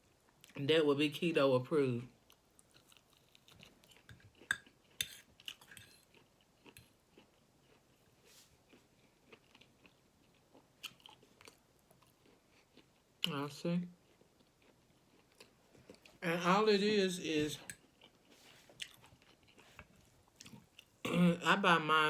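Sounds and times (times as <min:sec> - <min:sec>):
person chewing: 0:02.3 - 0:13.1, 0:14.0 - 0:16.2, 0:17.5 - 0:21.1.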